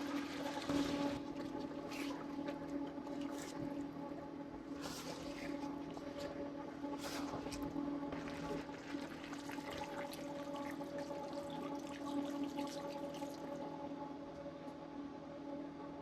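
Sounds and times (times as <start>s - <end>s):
steady hum: 0.0s - 16.0s
water running and splashing: 8.2s - 13.5s.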